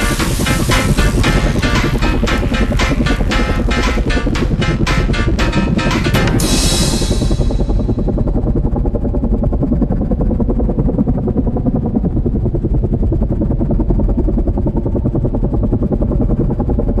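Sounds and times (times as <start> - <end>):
helicopter rotor chopping: 0.0 - 16.9.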